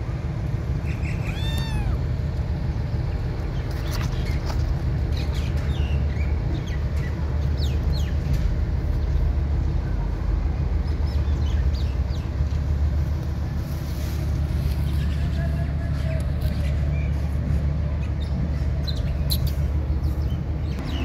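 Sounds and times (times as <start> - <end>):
steady low rumble: 0.0 - 21.0
small birds chirping: 18.0 - 21.0.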